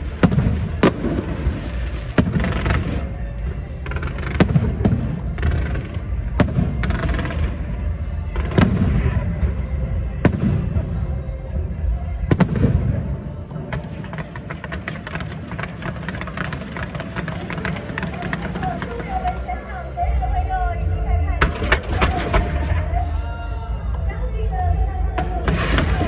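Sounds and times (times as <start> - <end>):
fireworks crackling pops: 0.0 - 3.2, 12.3 - 19.5
fireworks bangs and booms: 0.0 - 19.5, 25.0 - 26.0
background music: 0.0 - 26.0.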